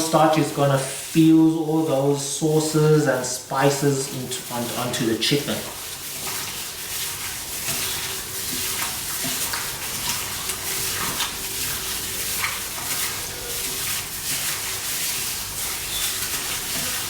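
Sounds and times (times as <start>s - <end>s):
wet squishing and squelching: 0.0s - 17.0s
small crackles: 3.9s - 17.0s.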